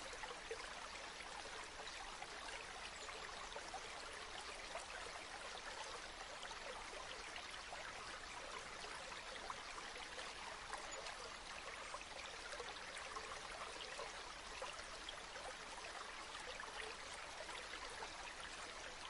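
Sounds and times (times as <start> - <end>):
faint stream babbling: 0.0 - 19.0.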